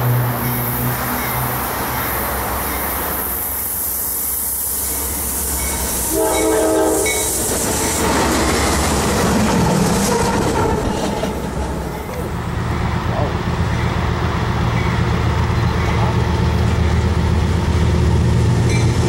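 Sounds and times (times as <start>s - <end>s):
locomotive engines and wheels: 0.0s - 19.0s
train air horn: 6.0s - 7.4s.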